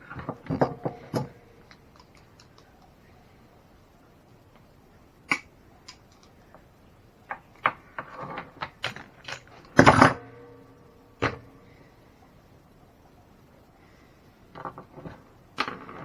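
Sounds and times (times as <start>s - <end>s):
tools and parts clicking: 0.1s - 2.9s, 5.3s - 6.4s, 7.3s - 10.2s.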